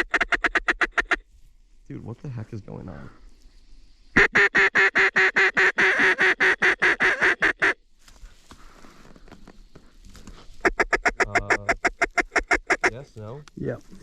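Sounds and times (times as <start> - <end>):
duck call quacks: 0.0 - 1.2, 4.2 - 7.8, 10.6 - 13.0.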